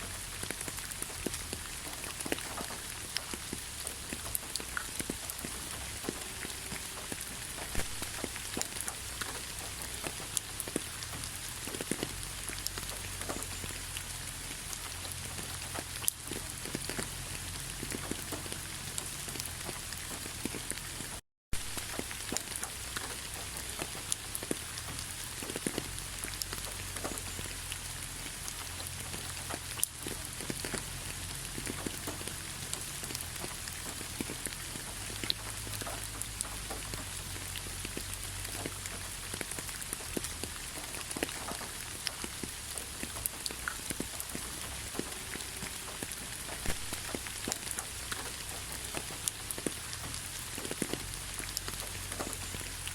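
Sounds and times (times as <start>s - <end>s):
rain falling: 0.0s - 52.9s
raindrops tapping close by: 0.0s - 52.9s.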